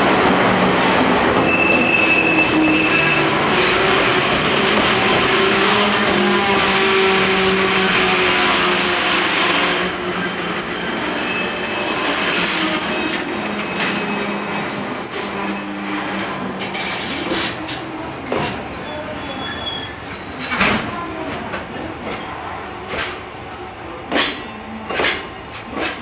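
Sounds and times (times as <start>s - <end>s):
train wagons rolling on rails: 0.0s - 26.0s
high wheel squeal: 1.4s - 17.6s, 18.8s - 20.4s.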